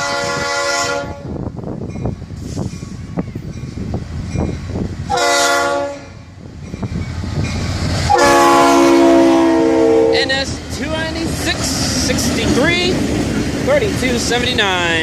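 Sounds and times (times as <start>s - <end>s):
locomotive air horn blasts: 0.0s - 1.3s, 5.1s - 6.2s, 8.1s - 10.4s
diesel locomotives rumbling: 0.0s - 15.0s.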